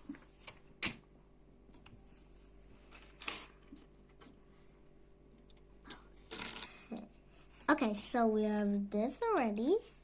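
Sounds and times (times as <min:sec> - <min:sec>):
plastic blocks clicking and knocking: 0:05.4 - 0:06.7.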